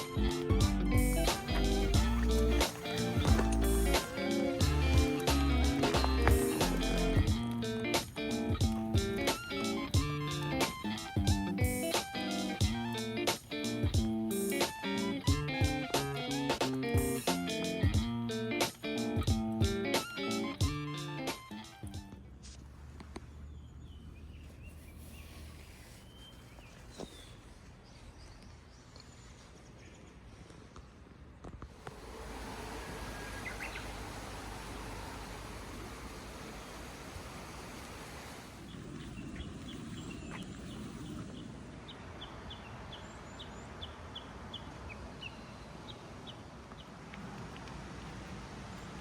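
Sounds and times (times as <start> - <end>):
bird chirps: 32.5 - 35.1.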